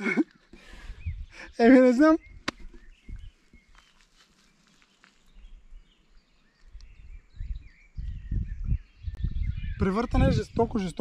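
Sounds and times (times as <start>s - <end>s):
low rumbling microphone noise: 5.3s - 11.0s.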